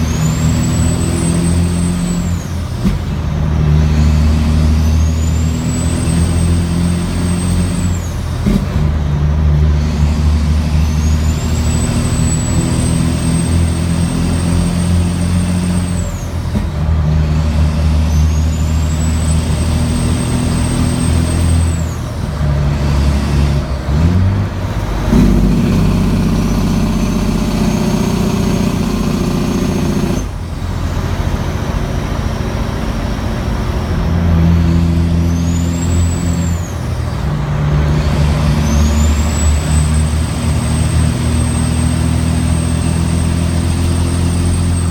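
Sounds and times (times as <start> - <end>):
diesel engine drone under load: 0.0 - 44.9
turbo whistling: 10.6 - 16.4, 34.4 - 37.2, 37.9 - 44.9.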